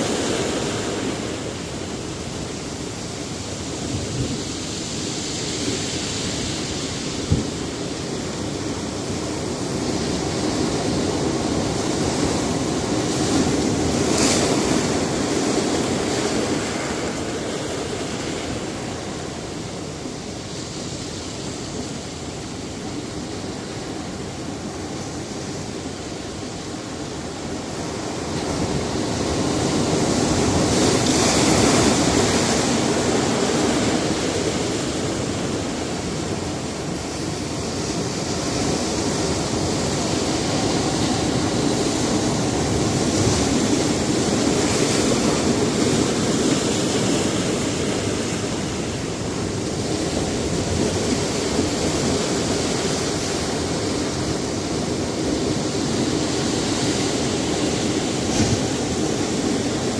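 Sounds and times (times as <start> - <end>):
water rushing on rocky shore: 0.0 - 59.9
waves breaking: 0.0 - 59.9.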